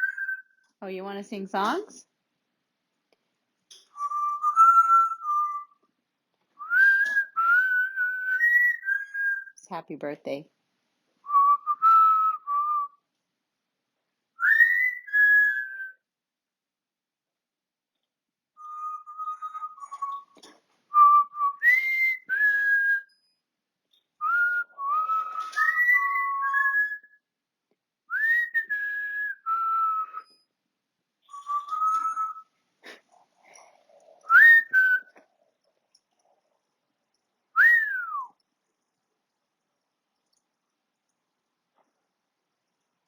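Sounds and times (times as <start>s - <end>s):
parrot whistling a tune: 0.0s - 0.6s, 4.0s - 5.7s, 6.6s - 9.5s, 11.3s - 12.9s, 14.4s - 16.0s, 18.6s - 23.1s, 24.2s - 27.1s, 28.1s - 30.4s, 31.3s - 35.2s, 37.6s - 38.4s.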